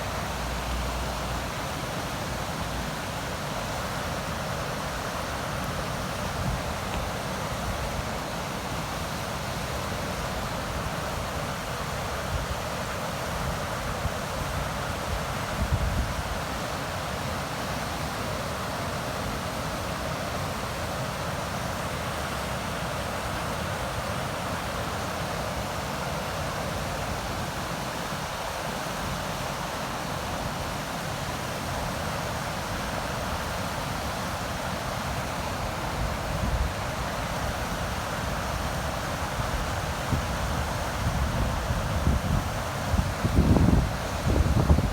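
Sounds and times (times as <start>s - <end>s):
river water rushing: 0.0s - 44.9s
wind buffeting microphone: 41.0s - 44.9s.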